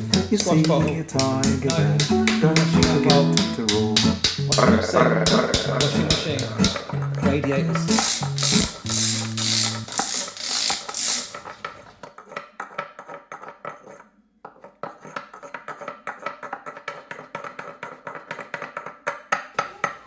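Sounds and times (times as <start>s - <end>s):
strummed guitar note: 0.0s - 9.8s
sharp taps on hard object: 0.1s - 9.4s.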